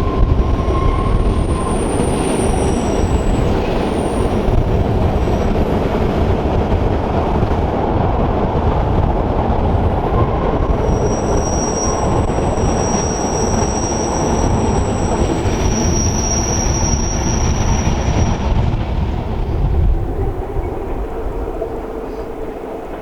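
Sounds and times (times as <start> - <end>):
high-pitched wheel squeal: 0.0 - 5.5, 10.8 - 18.7
train rolling rumble: 0.0 - 23.0.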